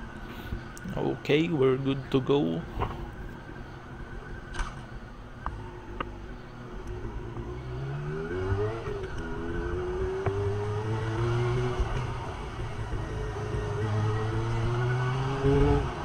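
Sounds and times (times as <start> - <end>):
motorcycle engine revving: 6.9 - 16.0.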